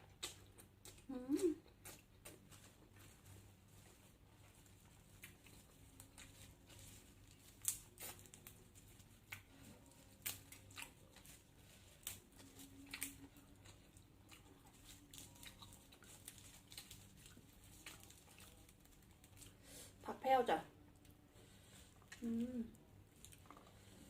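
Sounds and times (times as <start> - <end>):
chewing with crisp crunches: 0.0 - 19.6, 20.9 - 24.0.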